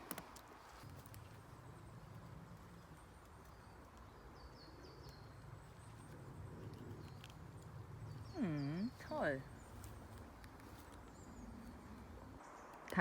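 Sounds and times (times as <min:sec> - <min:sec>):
bird chirping: 0:02.7 - 0:13.0.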